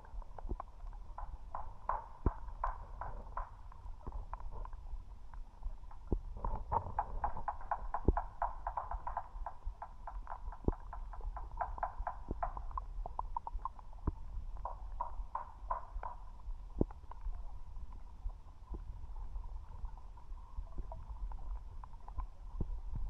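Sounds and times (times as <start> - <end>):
irregular clicks and ticks: 0.0 - 18.0
underwater low rumble: 0.0 - 23.0.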